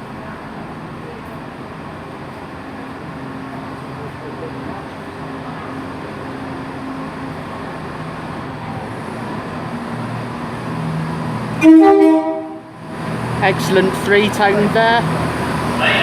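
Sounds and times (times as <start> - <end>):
diesel train engine idling: 0.0 - 16.0
three-tone train horn blast: 11.6 - 12.7, 15.8 - 16.0.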